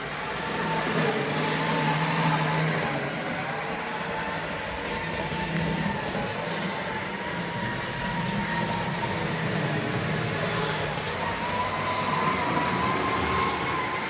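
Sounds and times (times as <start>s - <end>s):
model train motor whine: 0.0s - 14.0s
wheels rumbling on rails: 0.0s - 14.0s.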